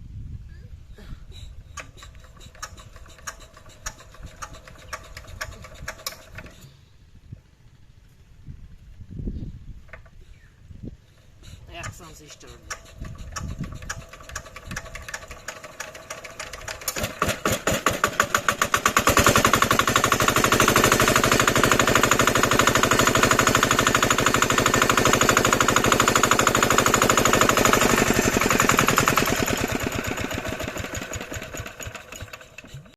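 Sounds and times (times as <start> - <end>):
diesel engine starting: 1.7 - 6.8, 11.7 - 32.9.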